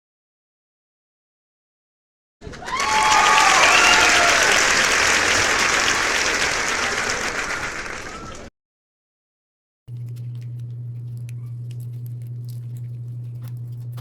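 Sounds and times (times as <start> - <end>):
crowd applauding: 2.4 - 8.5
people cheering: 2.4 - 8.5.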